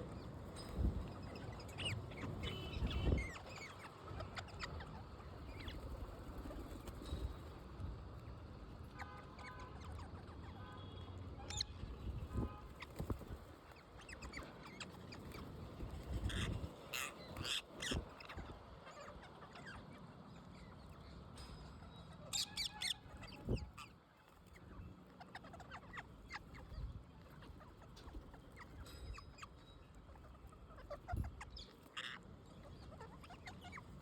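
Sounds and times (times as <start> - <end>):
parrots squawking: 14.0 - 20.0, 21.9 - 24.0, 25.1 - 34.0.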